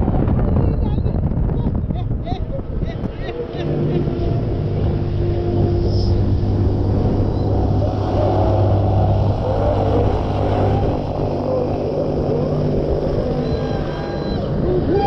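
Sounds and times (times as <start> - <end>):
low machine hum: 0.0 - 15.0
rushing noise: 3.8 - 14.7.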